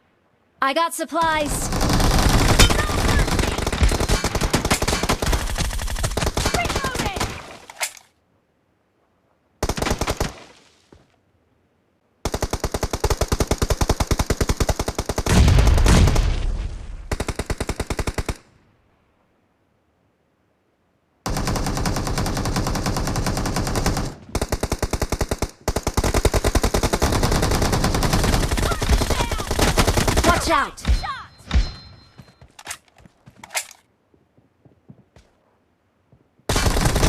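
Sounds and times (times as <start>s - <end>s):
video game automatic gunfire: 1.3s - 7.3s, 21.3s - 30.6s, 36.5s - 37.0s.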